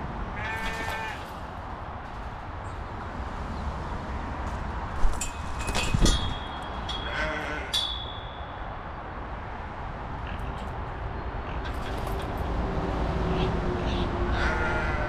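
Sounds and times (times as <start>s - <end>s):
wind rumbling on microphone: 0.0s - 7.1s
sheep bleating: 0.3s - 1.4s, 7.0s - 7.8s, 14.0s - 15.0s
small bells jingling: 5.0s - 9.0s.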